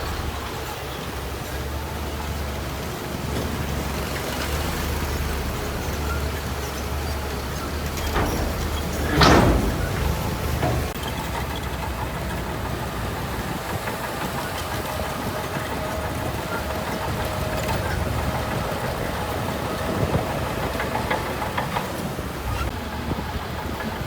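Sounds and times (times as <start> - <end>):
heavy diesel machinery running: 0.0 - 24.0
metal clanks: 5.8 - 12.8.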